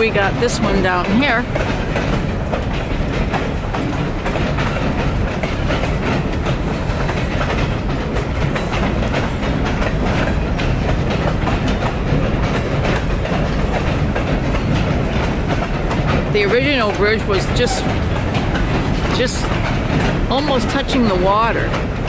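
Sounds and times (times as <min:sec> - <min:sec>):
train rumbling over bridge: 0:00.0 - 0:22.0
train wheels clacking over rail joints: 0:00.0 - 0:22.0.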